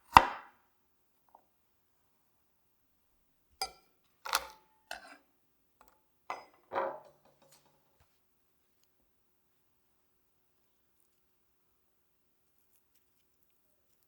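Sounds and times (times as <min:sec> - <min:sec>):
kitchenware clinking and knocking: 0:06.3 - 0:07.7.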